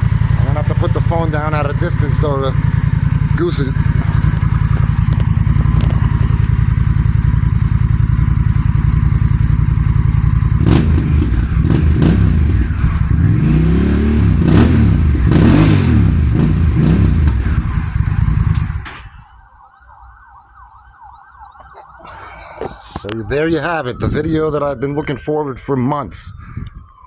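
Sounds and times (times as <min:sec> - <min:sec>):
motorcycle engine idling and revving: 0:00.0 - 0:19.1.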